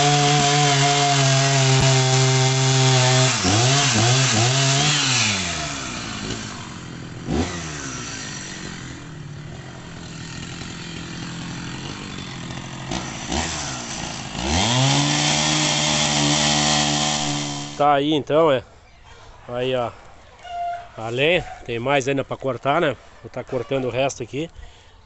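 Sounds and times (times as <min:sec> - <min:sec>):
chainsaw idling and revving: 0:00.0 - 0:17.9.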